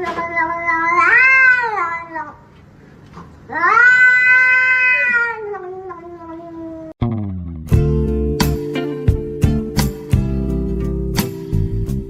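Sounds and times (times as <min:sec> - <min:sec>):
cat yowling: 0:00.0 - 0:02.4, 0:03.5 - 0:07.0.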